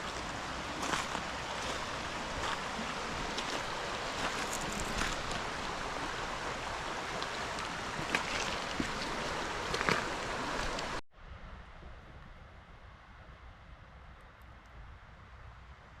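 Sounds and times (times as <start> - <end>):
river water flowing: 0.0 - 11.0.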